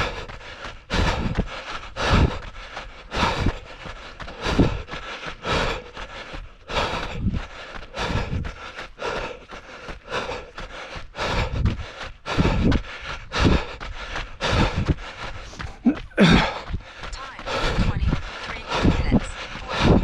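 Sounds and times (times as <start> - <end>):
runner breathing hard: 0.0 - 20.0.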